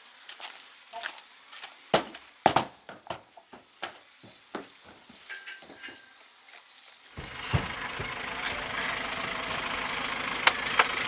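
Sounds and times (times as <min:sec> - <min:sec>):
thud: 0:07.2 - 0:08.2
sharp knocks: 0:07.2 - 0:08.7
heavy machine engine running: 0:07.2 - 0:11.0.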